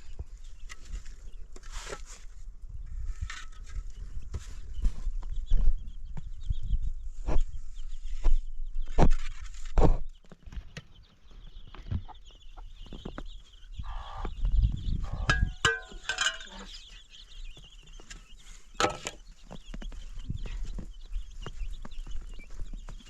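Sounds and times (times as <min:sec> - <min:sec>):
chickens clucking: 0:09.0 - 0:23.0.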